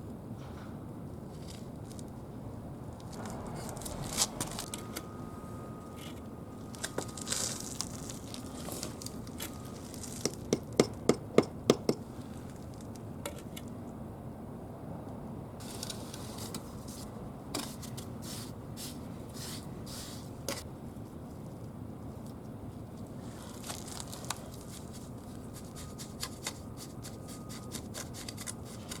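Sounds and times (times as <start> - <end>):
mortar scraping: 23.3 - 29.0.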